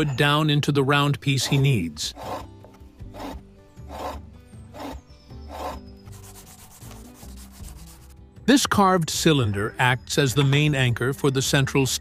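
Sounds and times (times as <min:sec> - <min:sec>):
chisel rasping on spinning wood: 0:01.4 - 0:08.0.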